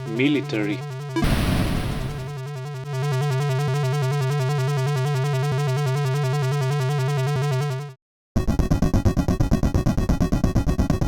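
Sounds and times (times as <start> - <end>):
synth tone with fast warble: 1.2 - 2.4.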